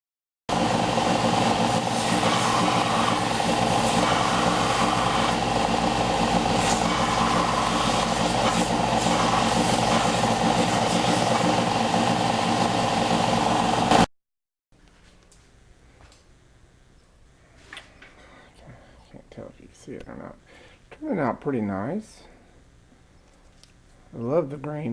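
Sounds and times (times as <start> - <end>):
power tool motor running: 0.5 - 14.1.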